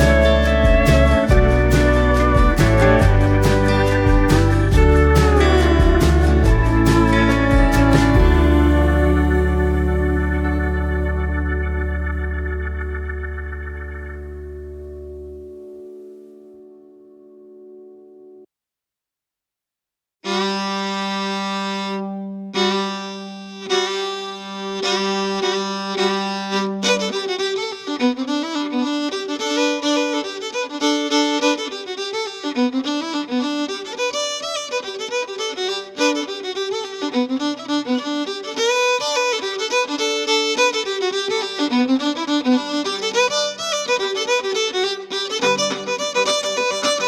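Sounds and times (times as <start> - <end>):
instrumental music: 0.0 - 18.5, 20.2 - 47.0.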